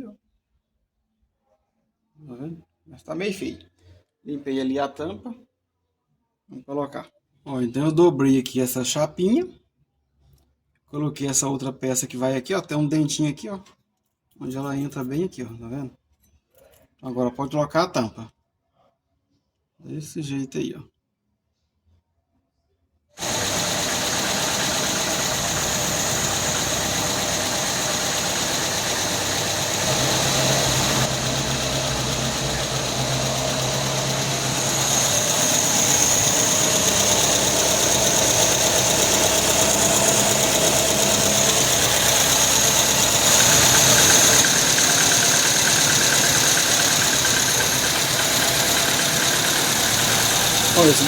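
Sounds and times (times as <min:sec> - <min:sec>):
car engine running: 0:23.2 - 0:51.0.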